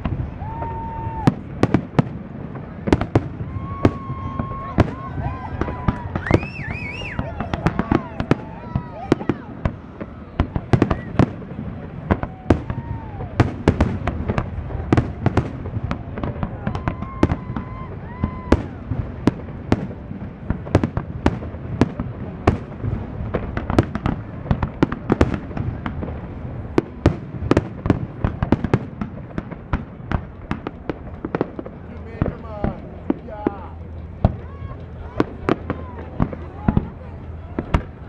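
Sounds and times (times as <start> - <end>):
fireworks bangs and cracks: 0.0 - 38.0
fireworks whistles: 5.6 - 8.4.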